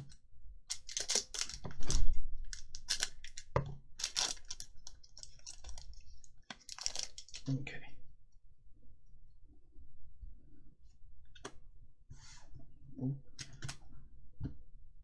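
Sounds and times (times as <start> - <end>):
packaging crinkling and rustling: 0.7 - 7.5.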